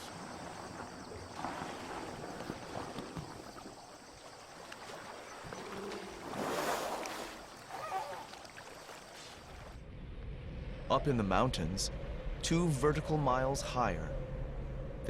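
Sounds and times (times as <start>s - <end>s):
water flowing and splashing: 0.0s - 9.8s.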